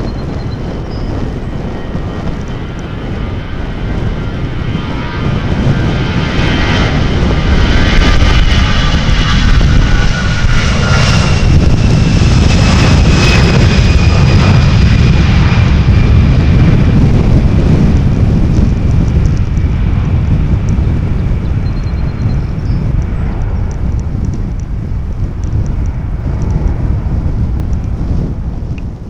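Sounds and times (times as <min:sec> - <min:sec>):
airliner engines passing: 0:00.0 - 0:29.0.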